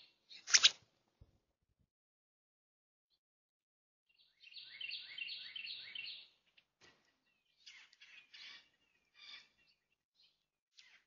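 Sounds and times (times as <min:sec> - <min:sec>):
songbird singing: 0:00.0 - 0:00.5, 0:04.1 - 0:11.0
bird chirps: 0:04.1 - 0:11.0.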